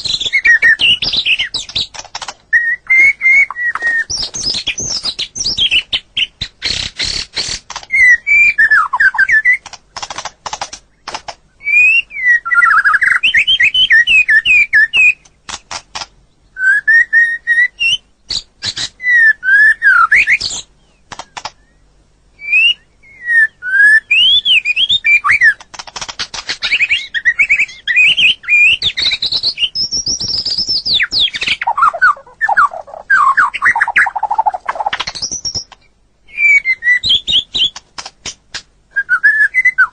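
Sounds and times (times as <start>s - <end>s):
bird singing whistled phrases: 0.0s - 1.8s, 2.5s - 6.8s, 7.9s - 9.6s, 11.6s - 15.2s, 16.5s - 20.7s, 22.4s - 25.6s, 26.6s - 35.7s, 36.3s - 37.8s, 38.9s - 39.9s
bird sharp clicking notes: 0.2s - 2.4s, 9.0s - 11.4s, 14.8s - 16.2s, 21.1s - 21.6s, 25.3s - 28.2s.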